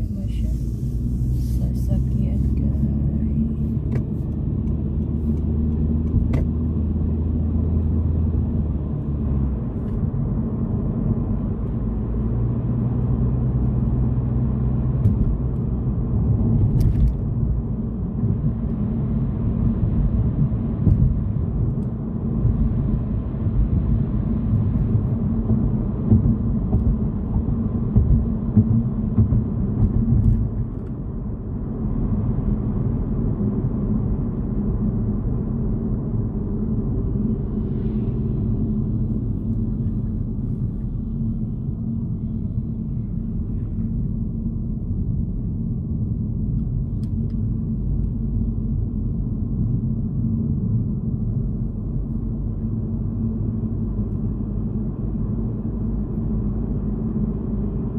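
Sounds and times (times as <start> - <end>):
car engine and tyres rumbling: 0.0 - 57.9.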